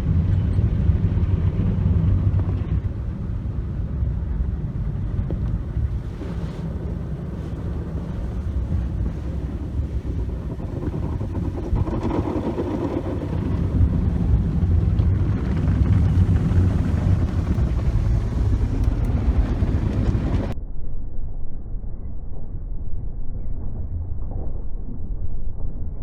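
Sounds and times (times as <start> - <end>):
car wash machinery rumble: 0.0 - 20.6.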